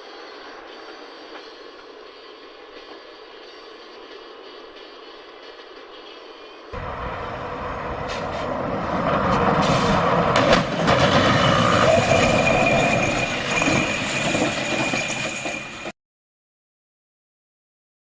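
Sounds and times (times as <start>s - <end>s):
thin high whine: 0.0s - 8.6s, 11.5s - 15.9s
heavy vehicle rumbling: 6.8s - 14.6s.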